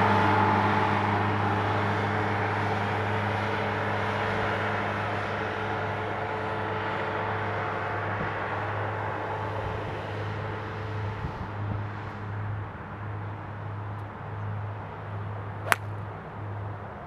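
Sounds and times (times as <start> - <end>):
golf ball struck by driver: 15.6 - 16.0.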